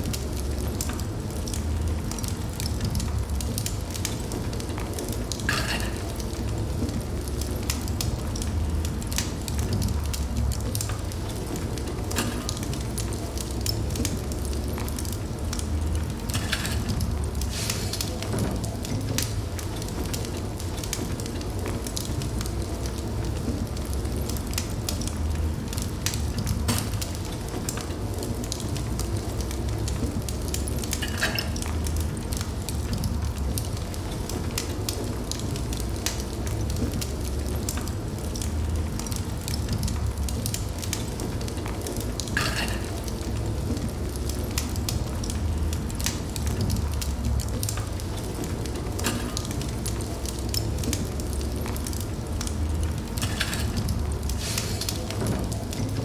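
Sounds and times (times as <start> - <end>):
fire crackling and popping: 0.0 - 56.0
wood fire rumbling: 0.0 - 56.0
hissing flare of fire: 16.0 - 18.3, 52.9 - 55.9.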